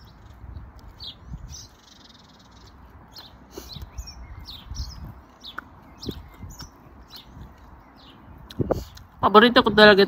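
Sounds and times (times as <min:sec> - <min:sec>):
small birds chirping: 0:00.0 - 0:10.0
person chewing food: 0:05.0 - 0:07.7.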